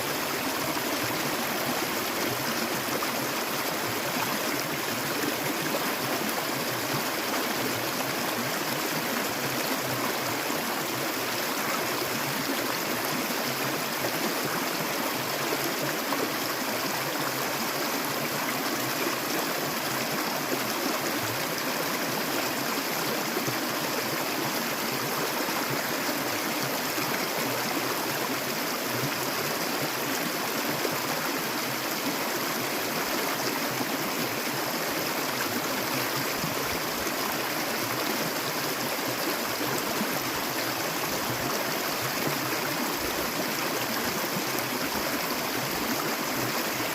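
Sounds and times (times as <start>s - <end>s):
stream water babbling: 0.0s - 46.9s.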